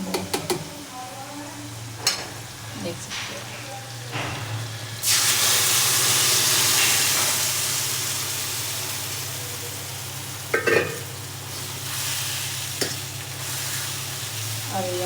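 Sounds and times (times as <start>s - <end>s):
batter sizzling in a pan: 3.9s - 15.0s
spoon clattering against pan: 10.5s - 11.0s.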